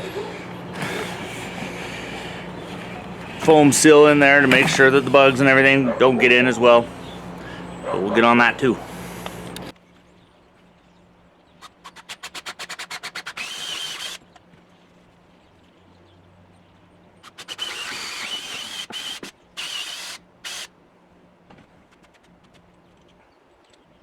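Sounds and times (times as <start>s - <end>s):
power drill boring into wood: 11.9s - 14.3s, 17.2s - 20.7s.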